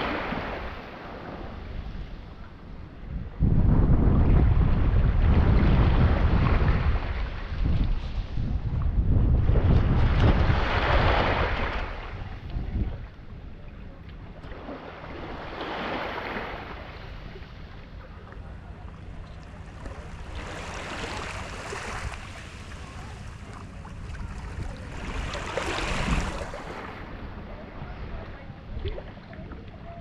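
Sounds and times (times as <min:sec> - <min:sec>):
sea water surging: 0:00.0 - 0:02.4, 0:14.2 - 0:30.0
wind buffeting microphone: 0:00.0 - 0:30.0
steady low rumble: 0:00.5 - 0:30.0.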